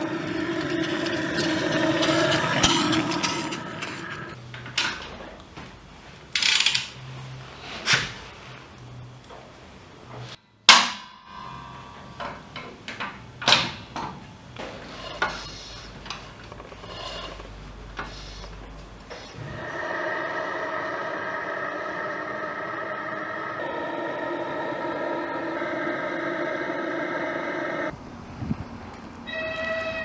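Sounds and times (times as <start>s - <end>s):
engine running: 0.0s - 4.4s, 19.5s - 27.9s.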